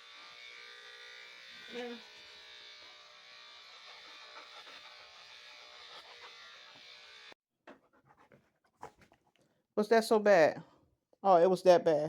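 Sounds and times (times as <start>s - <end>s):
electric clippers buzzing: 0.0s - 7.4s.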